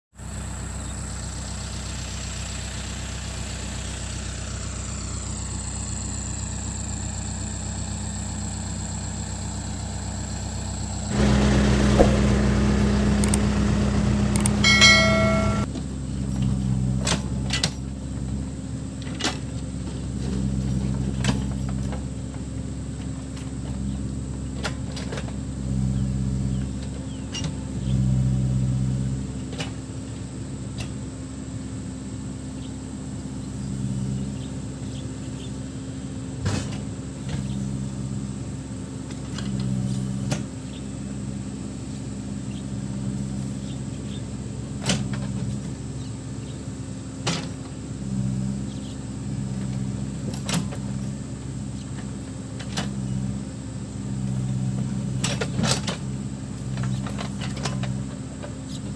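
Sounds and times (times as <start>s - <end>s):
backhoe diesel engine droning: 0.2s - 58.9s
sharp metal clanks: 14.6s - 15.7s.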